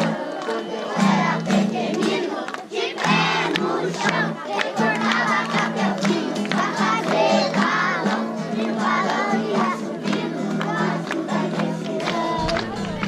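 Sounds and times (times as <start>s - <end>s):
group of people singing: 0.0s - 13.0s
sharp beats: 12.4s - 13.0s.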